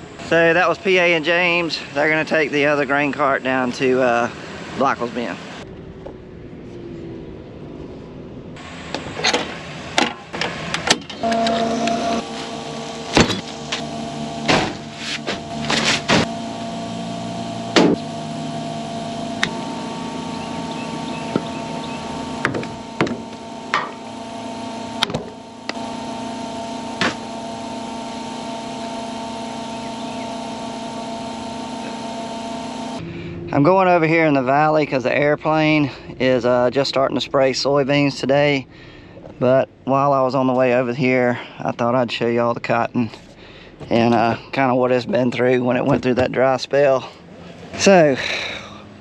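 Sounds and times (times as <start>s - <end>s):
vehicle engine running: 0.0s - 41.6s, 43.0s - 49.0s
sharp knocks and clicks: 22.4s - 24.0s.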